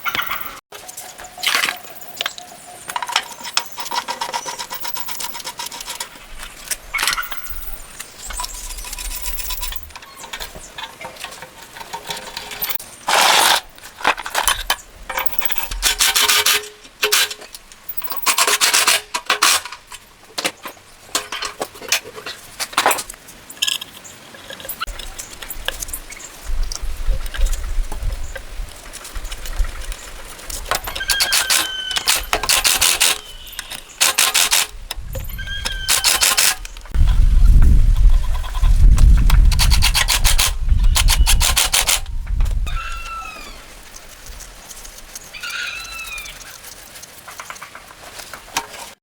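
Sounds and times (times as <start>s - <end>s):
hand scraping and rubbing: 27.4s - 49.0s.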